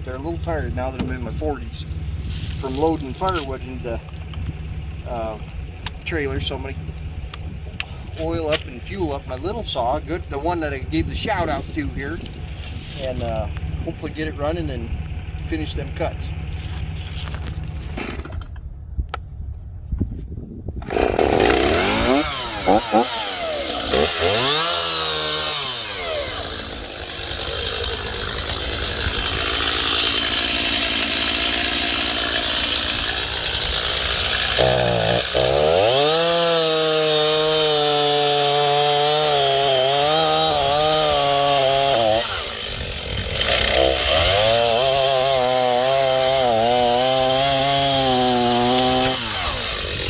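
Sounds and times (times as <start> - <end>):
chainsaw revving: 0.0 - 18.6, 20.8 - 50.0.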